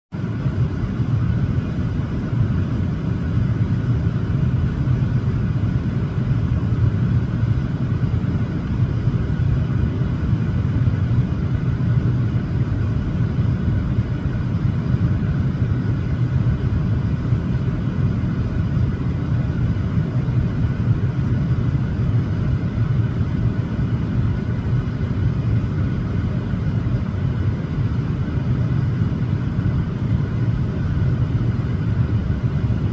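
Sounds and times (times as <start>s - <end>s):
steady low rumble: 0.2s - 32.9s.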